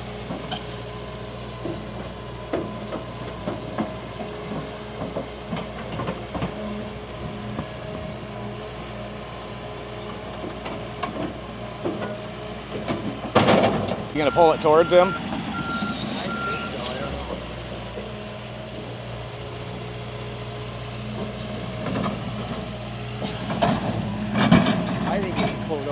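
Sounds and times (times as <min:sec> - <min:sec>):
excavator diesel engine running: 0:00.0 - 0:25.9
machine knocks and clanks: 0:01.6 - 0:07.7, 0:10.4 - 0:14.1, 0:21.1 - 0:25.9.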